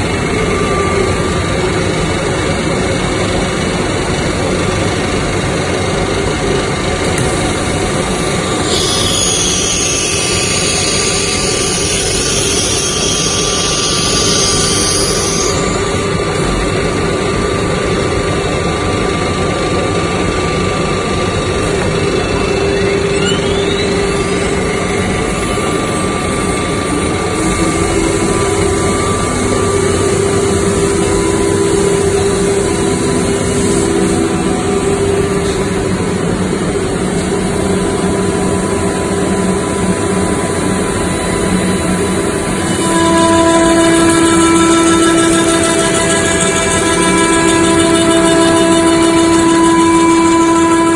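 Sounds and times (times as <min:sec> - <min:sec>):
rising whine: 0:00.0 - 0:43.0
router machine whine: 0:00.0 - 0:50.9
hiss: 0:08.6 - 0:15.8.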